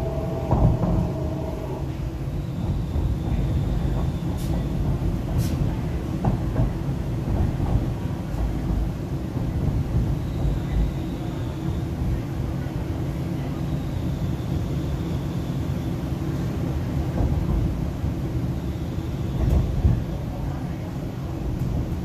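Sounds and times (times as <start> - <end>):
faint high whine: 0.0 - 2.8
train wheels and motors rumbling: 0.0 - 22.0.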